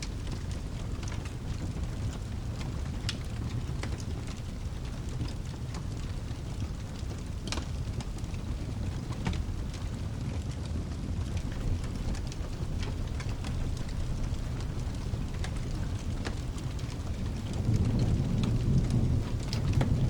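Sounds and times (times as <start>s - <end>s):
fireplace crackling with pops: 0.0s - 20.0s
rain: 0.0s - 20.0s
thunder: 11.3s - 20.0s
low rumble: 11.4s - 20.0s.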